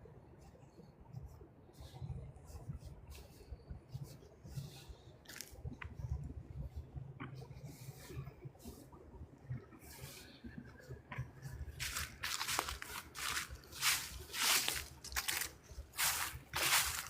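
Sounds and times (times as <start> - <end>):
footsteps crunching dry leaves: 11.7 - 17.0.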